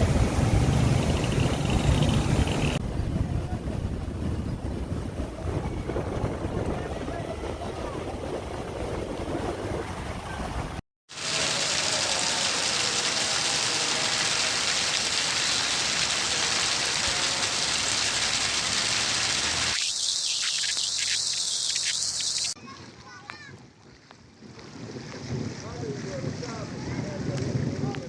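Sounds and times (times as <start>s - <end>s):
heavy rain hiss: 11.1s - 22.6s.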